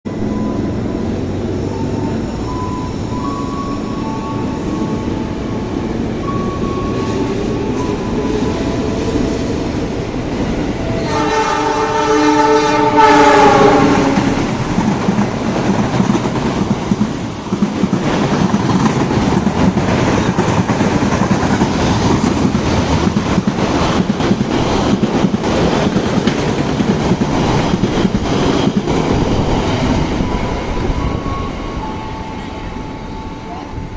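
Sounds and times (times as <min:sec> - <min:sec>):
train rumble: 0:00.1 - 0:33.9
train horn: 0:10.8 - 0:14.7, 0:31.7 - 0:33.9.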